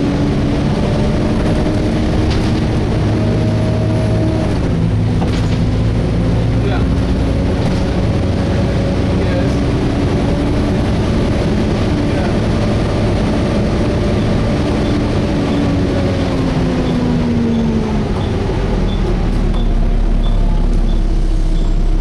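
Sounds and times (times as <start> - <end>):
bus diesel engine drone: 0.0 - 22.0
road rumble: 0.0 - 22.0.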